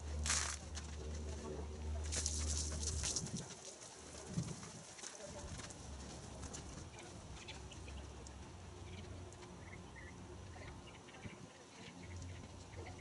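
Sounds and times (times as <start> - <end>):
birds calling: 6.9 - 13.0.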